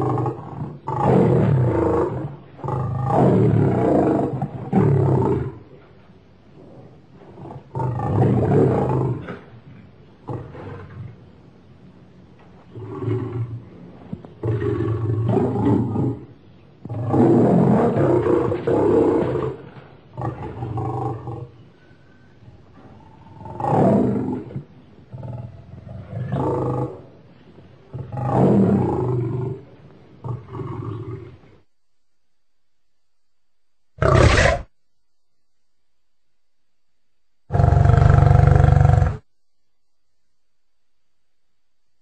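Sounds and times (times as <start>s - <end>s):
lion roaring and grunting: 16.9s - 21.6s, 34.0s - 34.7s, 37.5s - 39.2s.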